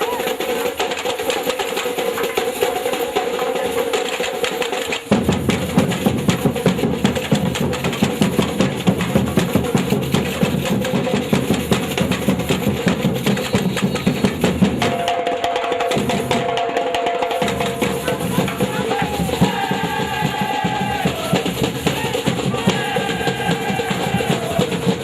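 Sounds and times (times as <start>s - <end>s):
samba percussion ensemble drumming: 0.0s - 25.0s
heavy bass drum strokes: 5.1s - 25.0s.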